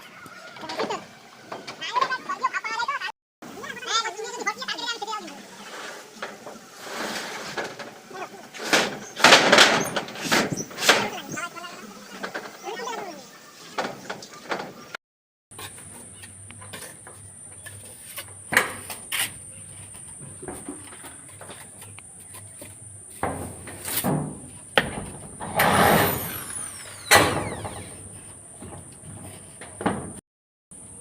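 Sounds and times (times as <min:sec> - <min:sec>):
knocks and clangs on tin sheets: 0:08.6 - 0:11.2, 0:20.2 - 0:26.2
scraping wobbling metal sheet: 0:23.1 - 0:30.2.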